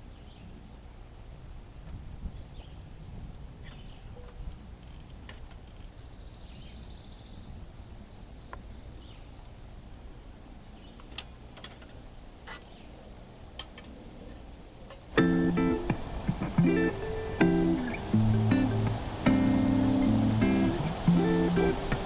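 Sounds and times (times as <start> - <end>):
low woodland rumble: 12.7 - 22.0
bird trill: 15.2 - 22.0.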